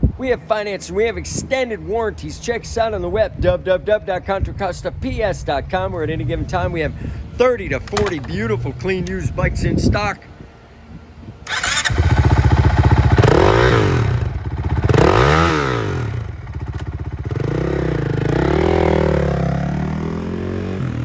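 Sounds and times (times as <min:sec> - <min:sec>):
motorcycle engine revving: 0:11.5 - 0:21.0.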